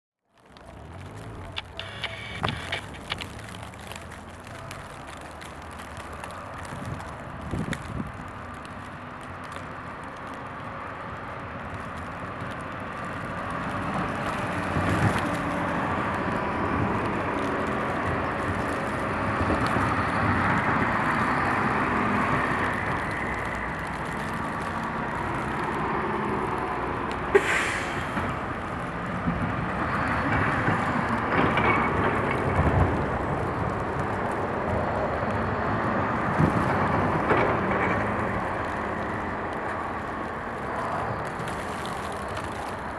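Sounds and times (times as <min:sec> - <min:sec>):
heavy vehicles driving past: 0:00.5 - 0:42.9
short sharp hiss: 0:27.3 - 0:28.2.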